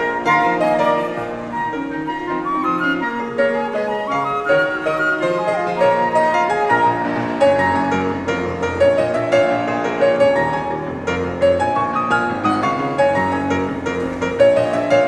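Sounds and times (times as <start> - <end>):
flutes: 0.0 - 7.6
clarinet: 0.0 - 15.0
piano with quick notes: 0.0 - 15.0.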